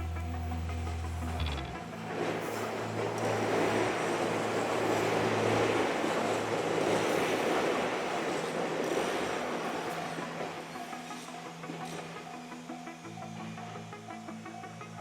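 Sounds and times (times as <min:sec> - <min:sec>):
train wheels on rails rushing: 0:02.1 - 0:10.7.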